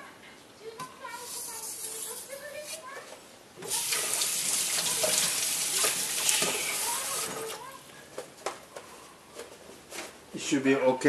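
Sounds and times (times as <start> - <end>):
water running from a tap: 3.6 - 7.7.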